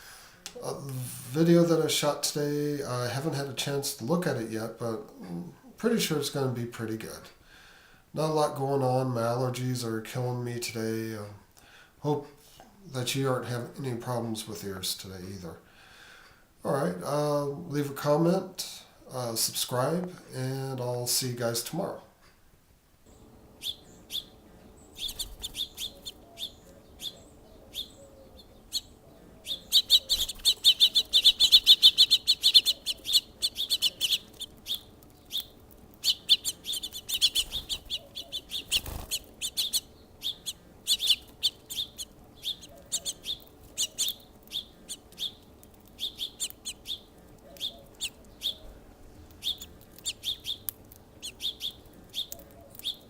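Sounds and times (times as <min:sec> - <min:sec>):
faint steady hum: 0:00.0 - 0:53.0
small songbirds chirping: 0:23.1 - 0:53.0.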